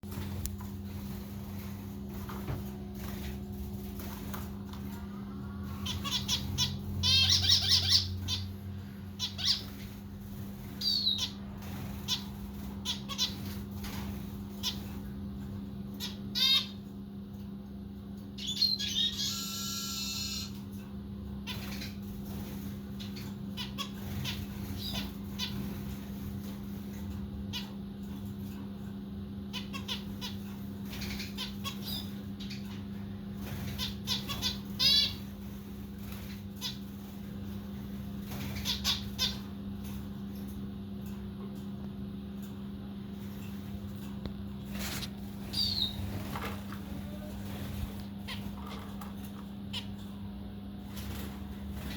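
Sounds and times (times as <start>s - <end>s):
steady low hum: 0.0s - 51.9s
zebra finches chirping: 5.6s - 16.9s, 18.4s - 20.7s, 21.3s - 37.2s, 38.0s - 40.0s, 44.7s - 49.0s, 49.7s - 50.1s.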